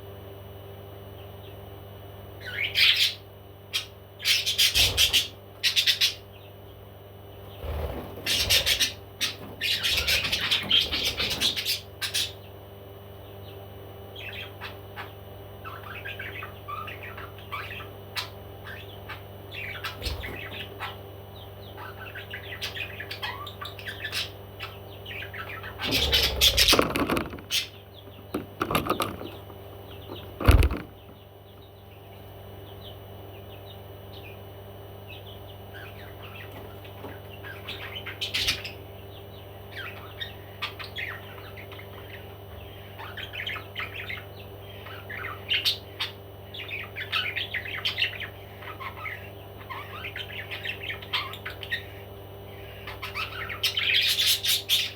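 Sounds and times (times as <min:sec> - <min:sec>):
steady low hum: 0:00.0 - 0:54.9
wing flapping: 0:07.6 - 0:11.7, 0:25.8 - 0:27.7, 0:28.3 - 0:29.5, 0:30.1 - 0:31.0
parrot chirping: 0:08.2 - 0:12.4.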